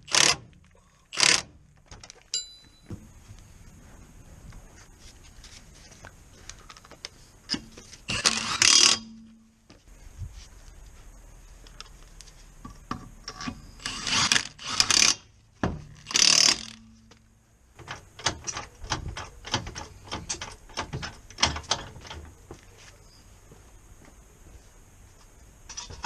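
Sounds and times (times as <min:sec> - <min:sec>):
ratchet rasps: 0:00.0 - 0:00.5, 0:01.1 - 0:01.5, 0:08.1 - 0:09.1, 0:13.3 - 0:15.3, 0:15.9 - 0:16.9
ratchet wrench clicking: 0:08.1 - 0:09.1, 0:13.8 - 0:15.2, 0:16.0 - 0:16.9.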